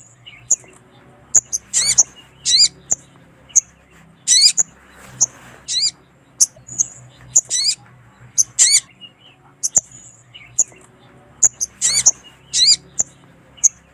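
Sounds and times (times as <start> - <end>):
short wavering bird calls: 0.0 - 13.9
sunbird chirping: 0.0 - 13.9.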